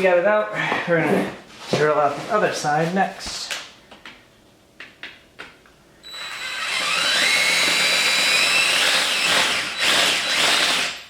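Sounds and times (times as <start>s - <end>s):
power drill whining: 6.0s - 11.0s.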